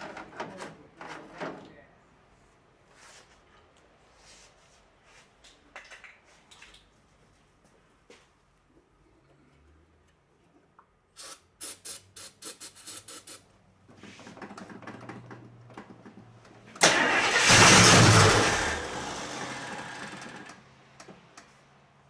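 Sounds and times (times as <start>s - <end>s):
car engine cranking and running: 14.4s - 20.7s.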